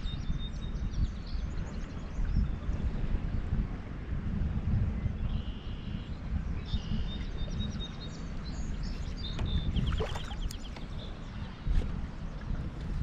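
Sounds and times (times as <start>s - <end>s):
wild birds chirping: 6.7s - 11.6s.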